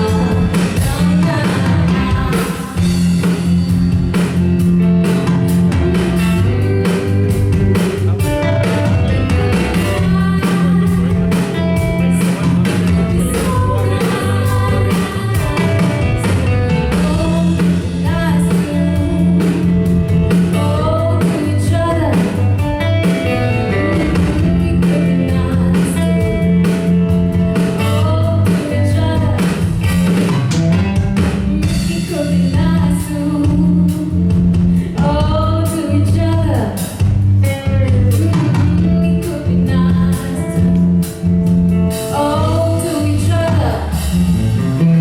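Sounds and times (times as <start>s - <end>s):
person singing: 0.0s - 3.0s, 6.8s - 22.5s, 23.6s - 26.6s
guitar accompaniment: 0.0s - 45.0s
steady low notes: 0.0s - 45.0s.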